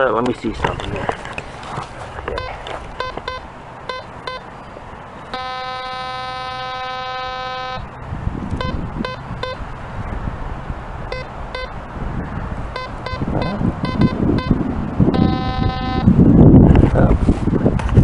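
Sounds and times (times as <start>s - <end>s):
rustling handling noise: 0.1s - 3.4s
metal detector steady tone: 2.3s - 4.5s, 5.2s - 9.6s, 11.1s - 11.8s, 12.7s - 16.2s
metal detector beeping chirps: 2.4s - 4.5s, 5.3s - 7.9s, 8.6s - 9.6s, 11.1s - 11.8s, 12.7s - 16.1s.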